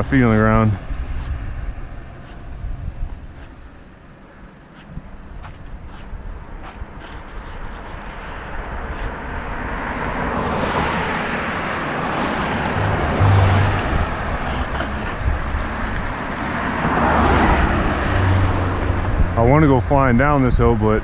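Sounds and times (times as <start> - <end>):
low wind buffeting rumbles: 0.0 - 21.0
wind rushing past helmet camera: 12.3 - 16.5.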